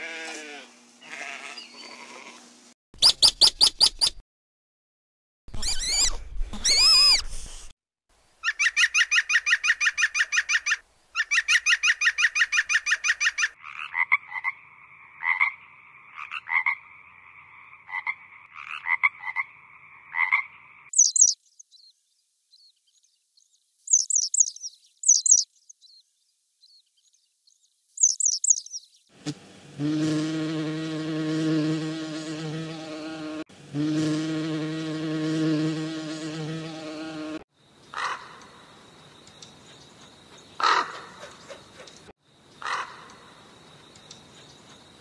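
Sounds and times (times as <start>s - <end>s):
two-toned animal call: 0.0s - 2.4s
short high chirps: 20.9s - 21.4s, 23.9s - 25.4s, 28.0s - 28.8s.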